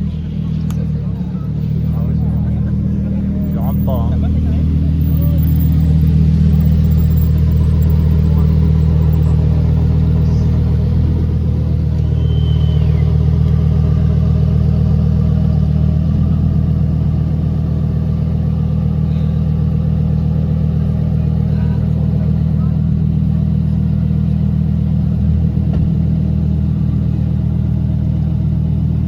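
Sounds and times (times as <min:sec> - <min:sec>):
car engine idling: 0:00.0 - 0:29.0
high whistle: 0:12.0 - 0:13.5.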